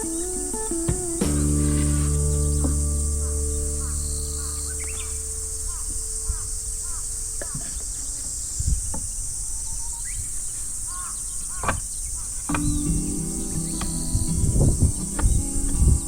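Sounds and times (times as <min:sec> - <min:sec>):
bird chirps: 0:00.0 - 0:16.0
insect chorus: 0:00.0 - 0:16.0
low rumble: 0:01.3 - 0:06.6.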